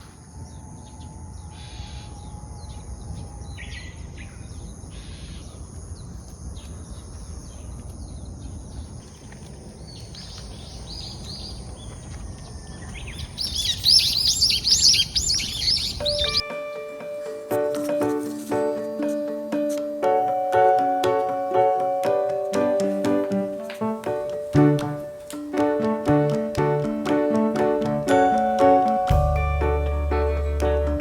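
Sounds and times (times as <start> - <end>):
birds chirping and calling: 12.8 - 16.5
loud repeated bird chirps: 13.1 - 16.4.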